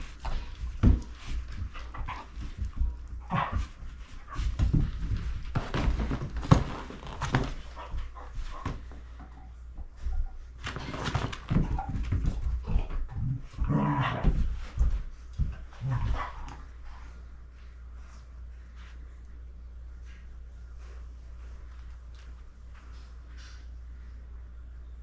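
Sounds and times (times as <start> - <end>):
rustling: 0.0 - 19.3.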